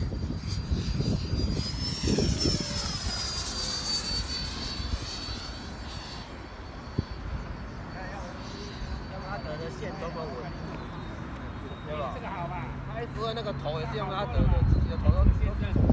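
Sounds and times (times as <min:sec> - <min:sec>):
wind rumble on microphone: 0:00.0 - 0:08.2, 0:14.2 - 0:15.9
model jet fan whine: 0:00.0 - 0:15.9.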